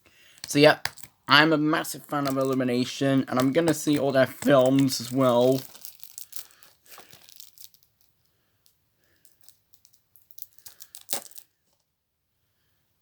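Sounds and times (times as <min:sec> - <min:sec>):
packaging crinkling: 0:00.3 - 0:08.2, 0:09.1 - 0:11.5.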